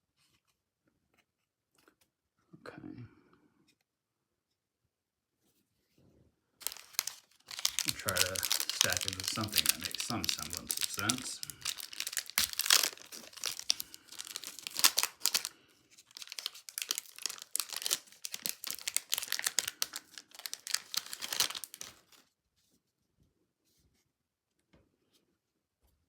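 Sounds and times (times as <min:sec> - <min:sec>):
wrapper tearing and crinkling: 0:06.6 - 0:22.2.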